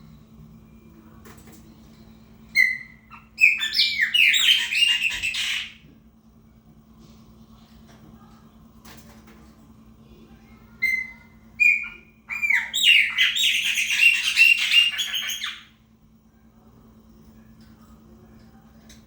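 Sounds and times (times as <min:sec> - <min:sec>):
blackbird singing: 0:02.6 - 0:05.8, 0:10.8 - 0:15.7.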